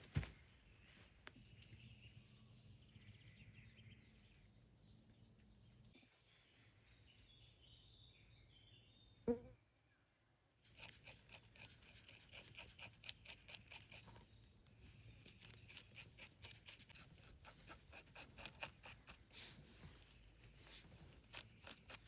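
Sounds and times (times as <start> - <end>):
crisp clicks and scrapes: 10.6 - 22.0.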